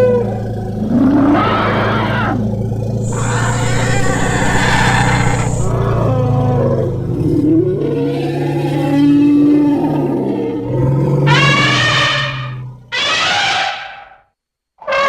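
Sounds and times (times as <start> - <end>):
elephant-like creature roaring: 0.0 - 14.2
steady low rumble: 2.4 - 7.4
low calls sliding in pitch: 3.0 - 7.4.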